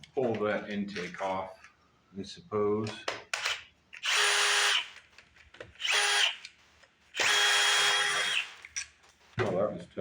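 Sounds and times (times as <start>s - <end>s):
cordless power driver whining: 3.4s - 5.0s, 5.8s - 6.5s, 7.2s - 8.7s.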